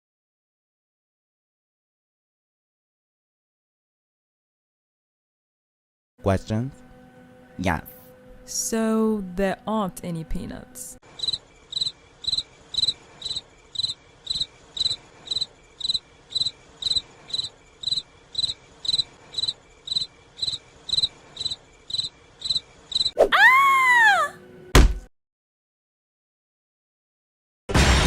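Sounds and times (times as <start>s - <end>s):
crickets chirping: 11.0s - 23.2s.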